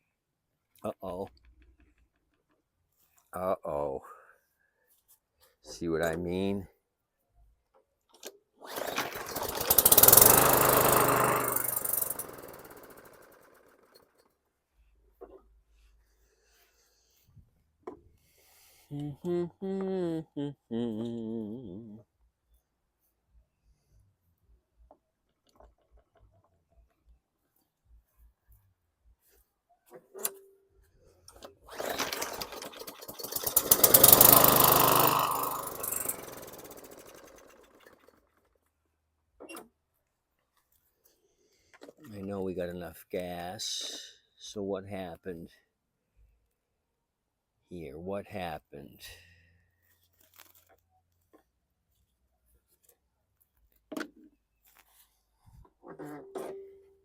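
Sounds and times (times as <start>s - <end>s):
lawn mower engine starting and stalling: 8.6s - 14.3s, 31.3s - 38.6s.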